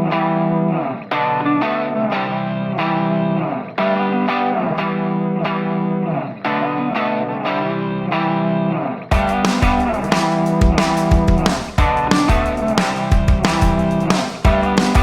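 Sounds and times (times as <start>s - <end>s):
distorted electric guitar chords: 0.0s - 15.0s
drums and full band: 9.1s - 15.0s.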